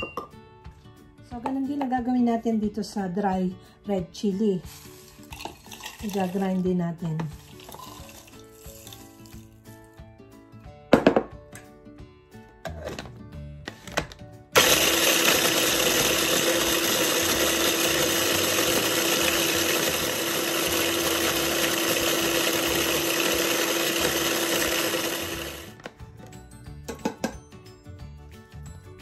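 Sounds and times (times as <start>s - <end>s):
electric food chopper grinding: 14.6s - 25.9s.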